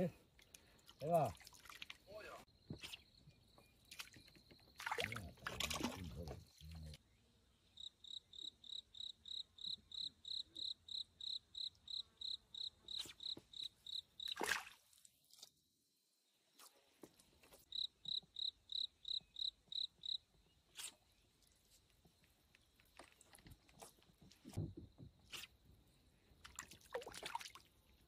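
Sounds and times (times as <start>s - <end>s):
water sloshing: 0.4s - 3.0s, 3.8s - 6.7s, 26.4s - 27.7s
cricket chirping: 0.7s - 6.8s, 7.7s - 14.6s, 17.6s - 20.9s.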